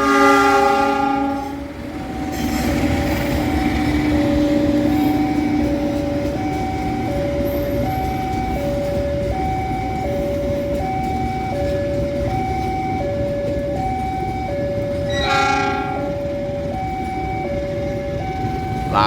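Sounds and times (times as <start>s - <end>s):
train horn blast: 0.0s - 1.8s, 15.1s - 16.2s
level crossing two-tone alarm: 0.0s - 19.0s
train rumbling on tracks: 0.0s - 19.0s.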